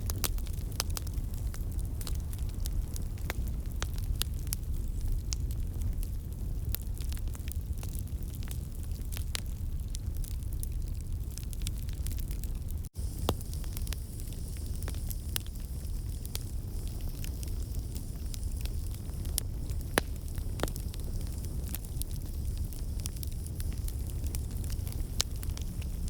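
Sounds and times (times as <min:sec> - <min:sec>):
burning wood pops and snaps: 0:06.7 - 0:26.0
fireplace crackling: 0:11.3 - 0:26.0.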